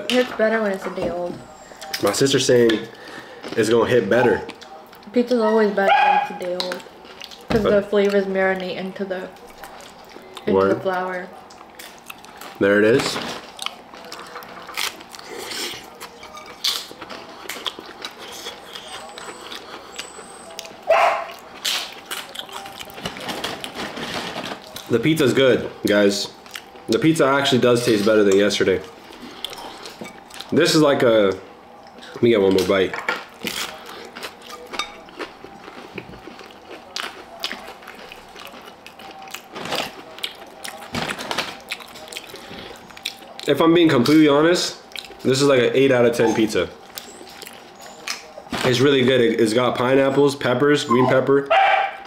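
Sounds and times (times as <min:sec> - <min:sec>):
person chewing: 0:01.8 - 0:05.0, 0:06.4 - 0:08.7, 0:11.3 - 0:24.9, 0:26.3 - 0:27.0, 0:28.8 - 0:30.5, 0:33.2 - 0:44.2, 0:44.8 - 0:45.3, 0:46.8 - 0:48.4.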